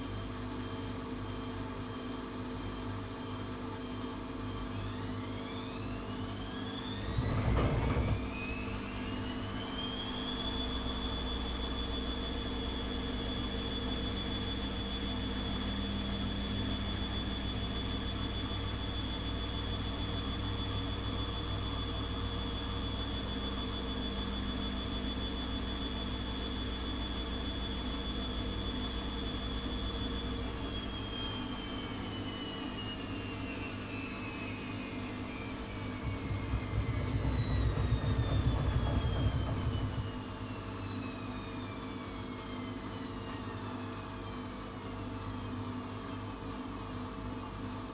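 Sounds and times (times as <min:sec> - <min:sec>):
washing machine motor whining: 0:04.5 - 0:45.6.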